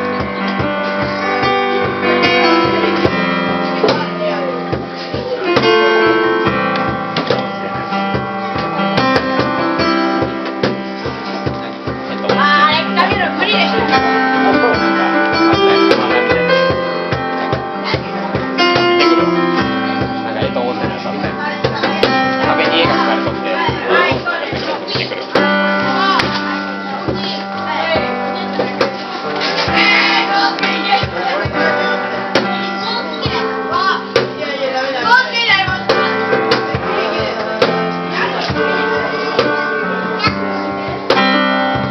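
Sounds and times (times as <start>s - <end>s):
acoustic guitar chords: 0.0s - 41.9s
cajon drum beat: 0.0s - 41.9s
people singing: 27.1s - 40.4s.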